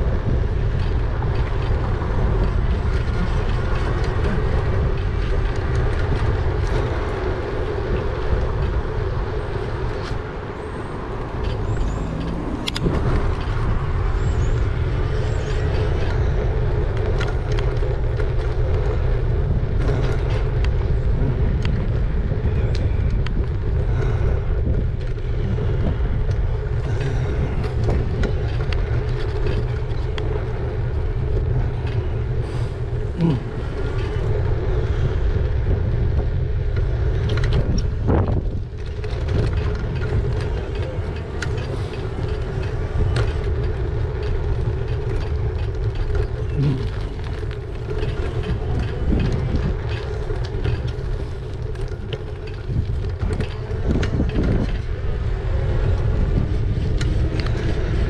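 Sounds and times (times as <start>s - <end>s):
tyre and road noise: 0.0s - 58.0s
wind rushing over microphone: 0.0s - 58.0s.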